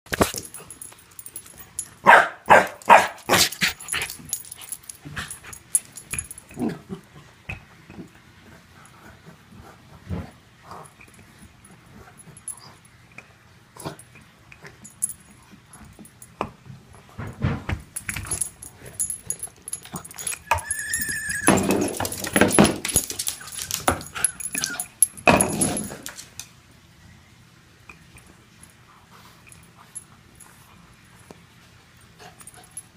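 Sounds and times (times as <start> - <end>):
dog barking: 2.0 - 3.5
dog yelping barks: 2.0 - 3.6, 20.3 - 21.8
dog yelping and whining: 20.1 - 22.4, 23.0 - 25.1.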